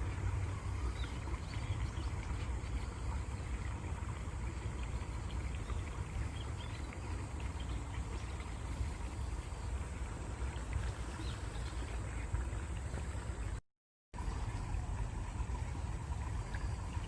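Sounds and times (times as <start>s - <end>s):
small splashes and trickles: 0.0s - 13.6s, 14.2s - 17.0s
stream water flowing: 0.0s - 13.6s, 14.2s - 17.0s.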